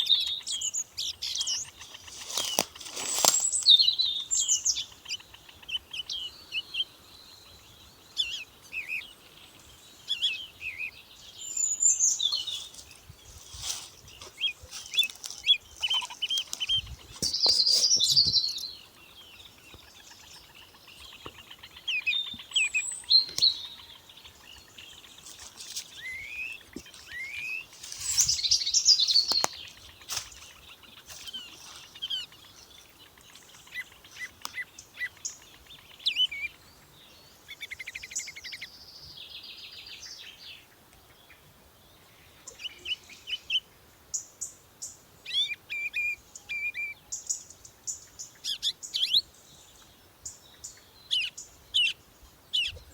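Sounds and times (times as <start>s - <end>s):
small songbirds singing: 0.0s - 52.9s.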